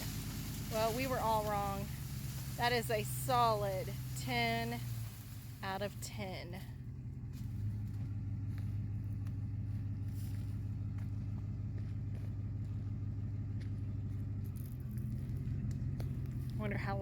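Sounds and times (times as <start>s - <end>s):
pickup truck engine idling: 0.0s - 17.0s.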